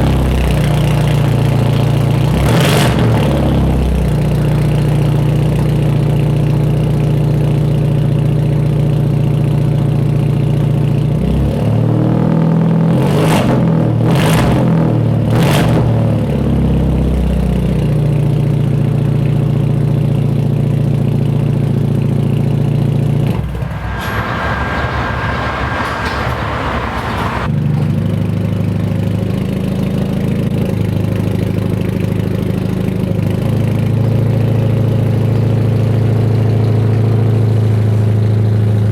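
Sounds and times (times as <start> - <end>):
car engine idling: 23.3 - 27.5
hissing noise: 23.4 - 27.5
sharp engine bursts: 23.4 - 27.5.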